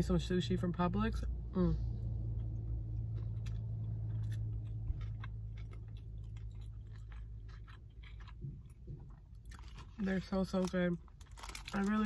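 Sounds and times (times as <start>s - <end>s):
steady low hum: 0.0s - 11.7s
mouth chewing food: 2.3s - 10.8s.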